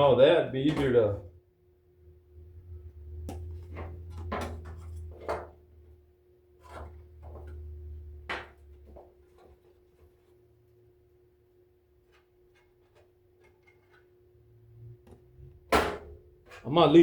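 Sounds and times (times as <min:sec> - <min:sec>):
low rumble: 0:02.0 - 0:04.3.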